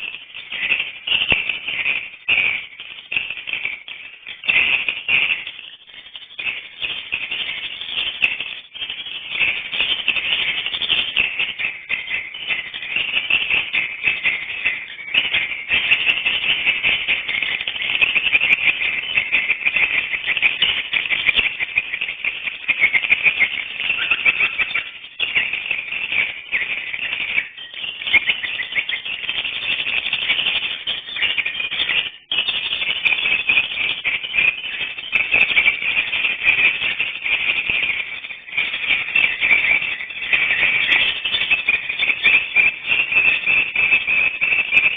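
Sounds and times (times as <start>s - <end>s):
swiftlets twittering: 17.1s - 30.4s.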